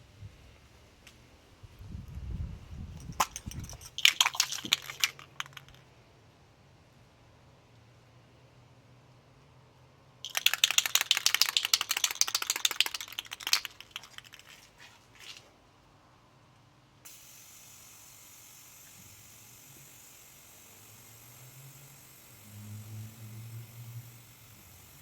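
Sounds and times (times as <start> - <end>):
faint steady hiss: 0.0 - 25.0
drive chain clicking over sprockets: 10.3 - 14.5.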